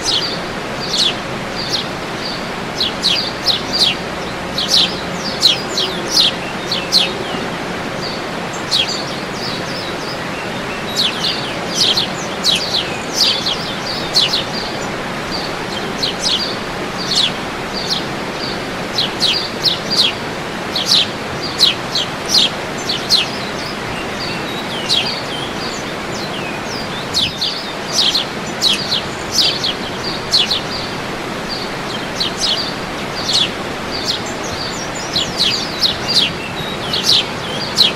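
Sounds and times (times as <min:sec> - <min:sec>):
birds chirping: 0:00.0 - 0:37.9
steady rushing noise: 0:00.0 - 0:37.9.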